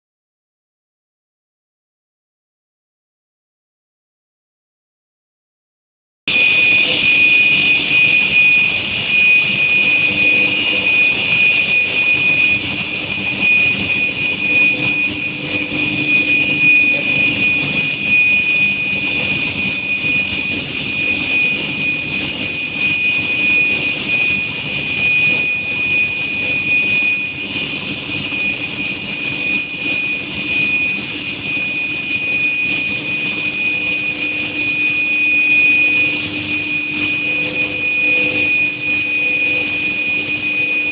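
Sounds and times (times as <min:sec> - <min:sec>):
furnace high-pitched tone: 0:06.3 - 0:40.9
low hum: 0:06.3 - 0:40.9.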